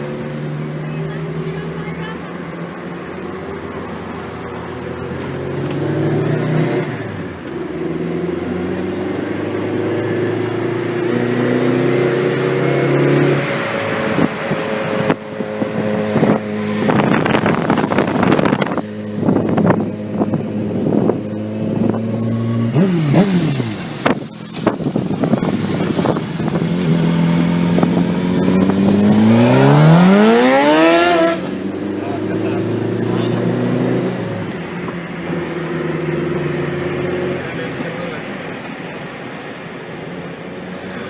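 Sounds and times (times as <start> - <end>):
motorcycle engine revving: 0.0 - 37.9
exhaust crackles: 11.6 - 39.1.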